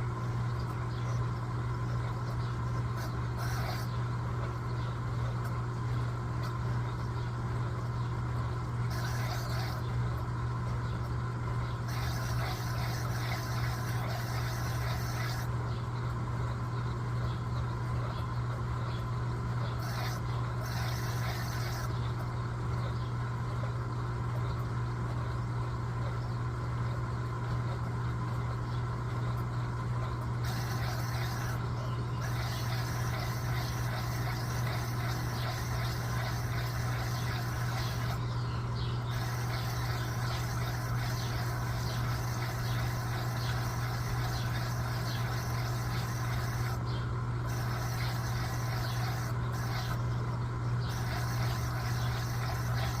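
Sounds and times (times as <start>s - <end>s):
washing machine motor hum: 0.0s - 53.0s
washing machine hiss: 3.0s - 3.9s, 8.9s - 9.9s, 11.9s - 15.5s, 19.8s - 21.9s, 30.4s - 38.2s, 39.1s - 46.8s, 47.4s - 50.0s, 50.8s - 53.0s.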